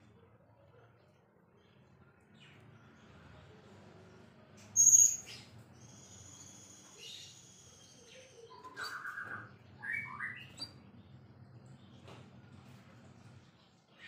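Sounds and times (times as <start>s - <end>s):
bird singing high whistle: 4.8s - 5.3s.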